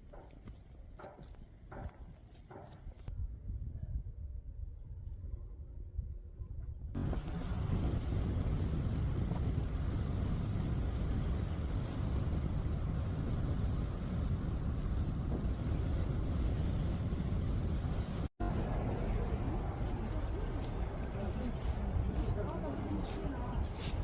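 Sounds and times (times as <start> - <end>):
moving vehicle rumble: 6.9 - 24.0.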